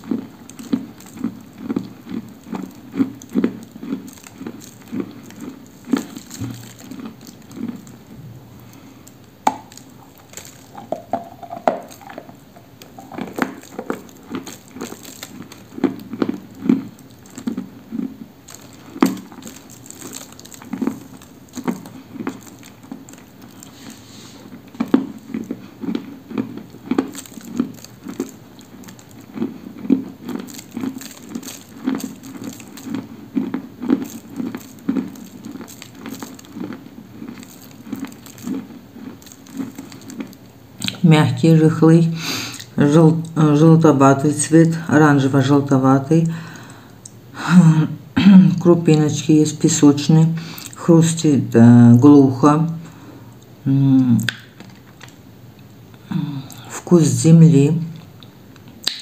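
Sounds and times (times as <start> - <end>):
crunchy chewing of clay: 0.0 - 41.1.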